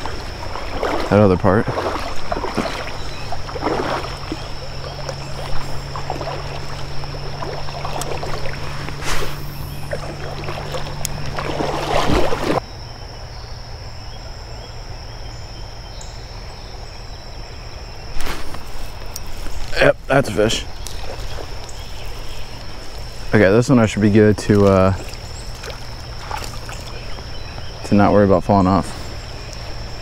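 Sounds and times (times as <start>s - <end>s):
person wading through water: 0.0s - 12.6s, 20.3s - 27.9s.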